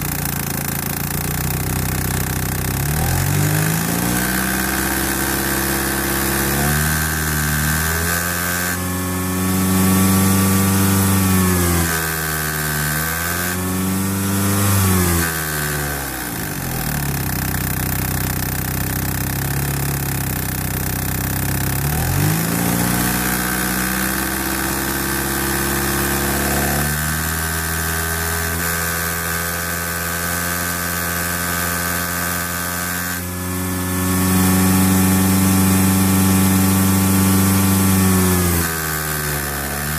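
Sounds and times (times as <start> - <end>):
engine ticking: 0.0 - 8.2, 14.4 - 26.7
car engine revving: 0.0 - 39.9.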